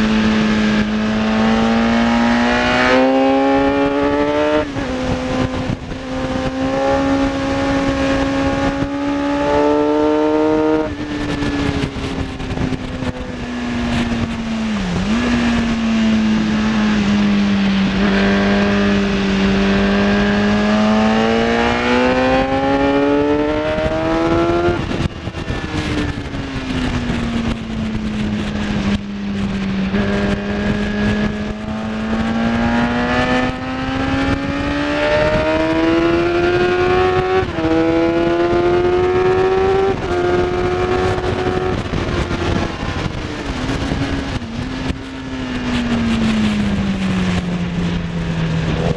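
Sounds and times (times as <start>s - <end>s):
motorcycle engine accelerating: 0.0s - 48.9s
wind on microphone: 0.0s - 48.9s.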